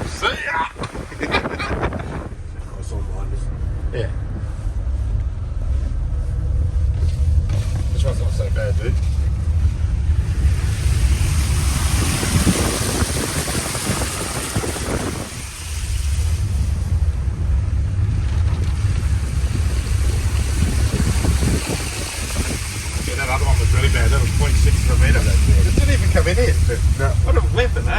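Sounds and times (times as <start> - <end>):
water rushing and splashing: 0.0 - 1.9, 7.5 - 27.9
vehicle engine running low: 0.0 - 27.9.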